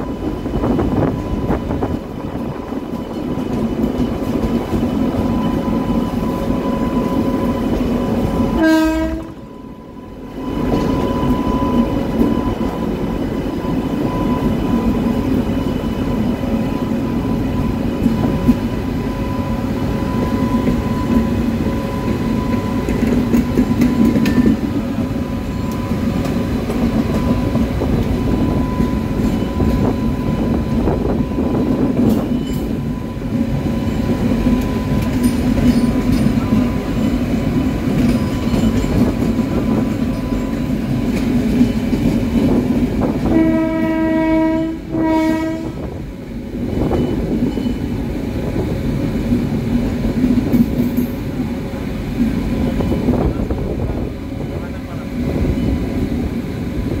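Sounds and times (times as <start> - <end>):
train rumbling on track: 0.0 - 57.0
train horn blast: 8.5 - 9.4, 43.2 - 46.0.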